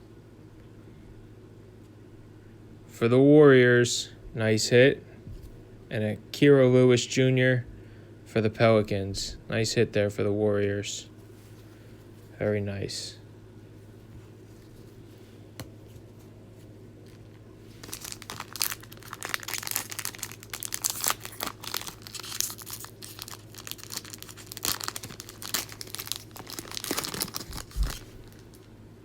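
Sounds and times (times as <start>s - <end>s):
wrapper tearing and crinkling: 17.0s - 28.7s.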